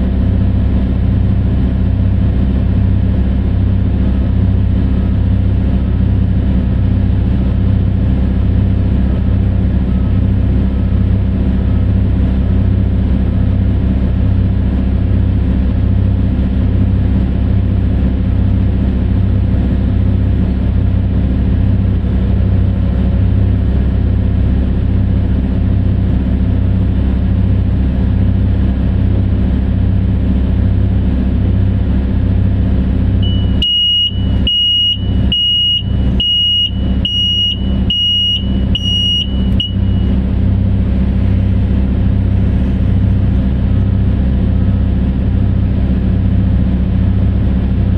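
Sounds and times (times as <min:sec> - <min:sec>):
diesel engine rumbling: 0:00.0 - 0:47.9
reversing alarm beeping: 0:33.2 - 0:40.2.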